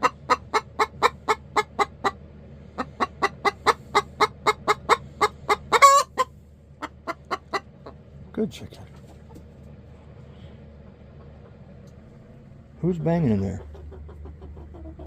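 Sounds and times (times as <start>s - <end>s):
hen clucking: 0.0s - 15.0s
hen squawk: 2.8s - 7.7s.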